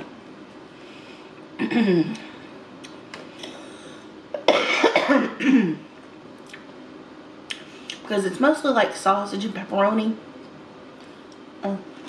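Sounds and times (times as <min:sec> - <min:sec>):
woman clearing her throat: 0:01.6 - 0:02.2, 0:04.4 - 0:05.9.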